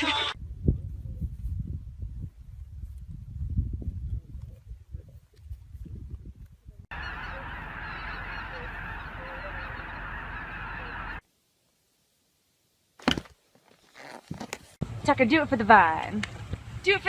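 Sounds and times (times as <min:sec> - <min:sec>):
chorus of bird calls: 0:06.9 - 0:11.2.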